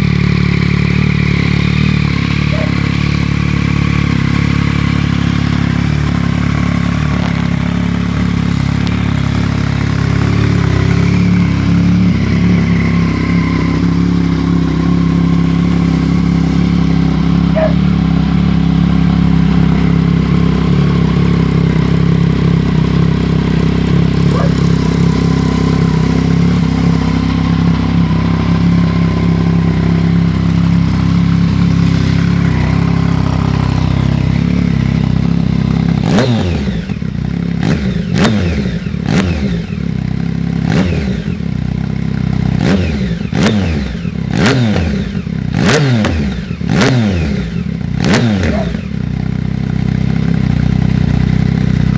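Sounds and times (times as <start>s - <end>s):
motorcycle engine running: 0.0s - 51.9s
sharp throttle blips: 17.5s - 18.0s.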